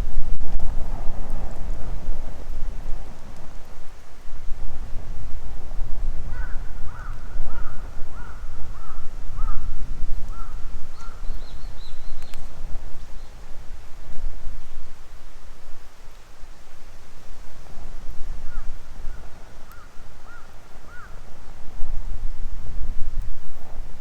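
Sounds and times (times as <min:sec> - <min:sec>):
fire burning with pops: 0:00.0 - 0:24.0
bird calling: 0:19.7 - 0:21.2.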